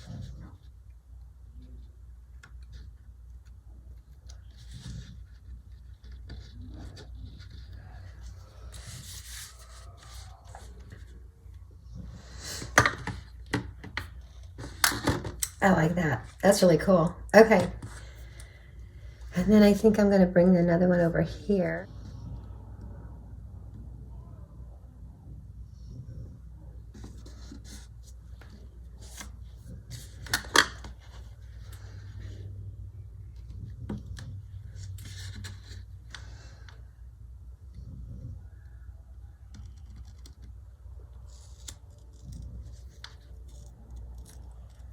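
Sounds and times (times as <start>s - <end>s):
paper rustling: 4.2s - 11.3s, 26.9s - 32.4s, 33.3s - 36.6s, 41.2s - 44.9s.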